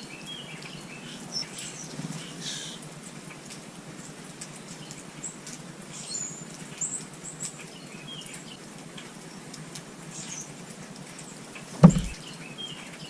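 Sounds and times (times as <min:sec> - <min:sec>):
small songbirds chirping: 0:00.0 - 0:03.2, 0:04.0 - 0:13.0
light clicks and tapping: 0:11.8 - 0:12.2.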